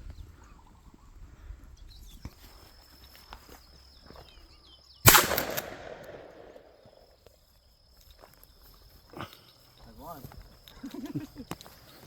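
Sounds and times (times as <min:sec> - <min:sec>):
gunshot: 0:05.1 - 0:06.8.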